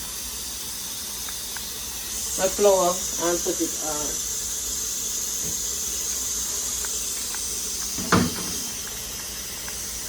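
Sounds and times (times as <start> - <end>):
pot hissing on stove: 0.0 - 10.0
sharp knock: 8.0 - 8.6.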